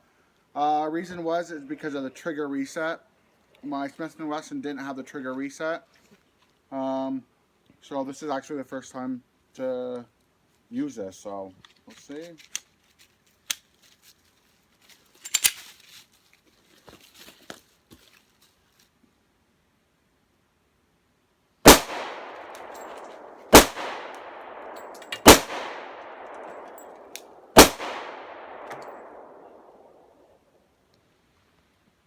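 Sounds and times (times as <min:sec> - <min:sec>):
metallic clicks of gun handling: 0:11.6 - 0:14.0, 0:15.2 - 0:15.8, 0:21.7 - 0:29.4
pistol shots with echo: 0:21.7 - 0:30.0.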